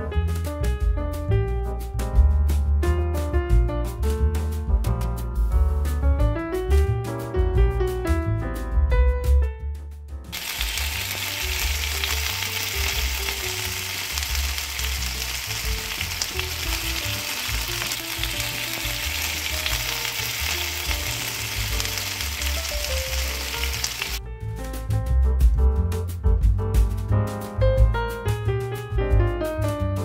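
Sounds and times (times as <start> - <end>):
gnocchi sizzling in a frying pan: 10.4 - 24.2.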